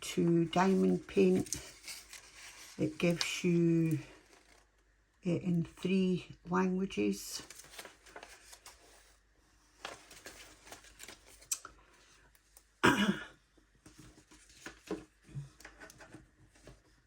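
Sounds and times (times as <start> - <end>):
paper rustling: 0.5 - 4.8, 7.4 - 12.4, 13.8 - 17.0.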